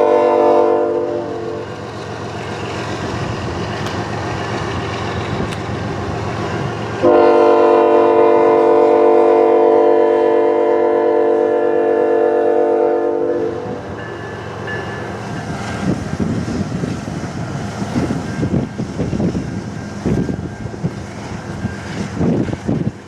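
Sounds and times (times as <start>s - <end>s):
locomotive air horn chord: 0.0s - 1.8s, 7.0s - 13.9s
passing train rumble: 0.0s - 23.0s.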